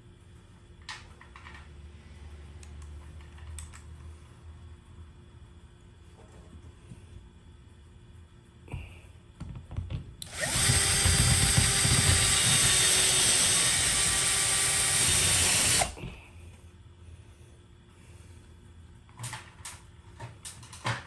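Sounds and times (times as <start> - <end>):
power drill running: 10.2 - 16.0.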